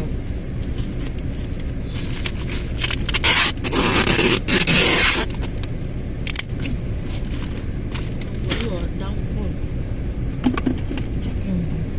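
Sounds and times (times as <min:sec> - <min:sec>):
low steady rumble: 0:00.0 - 0:11.9
paper and tape scraping: 0:00.7 - 0:05.6.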